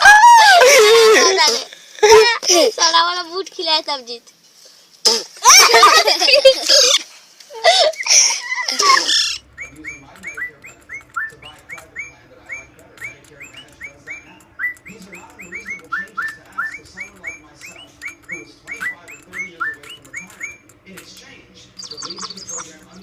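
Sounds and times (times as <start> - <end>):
pet bird chirping: 8.1 - 23.0.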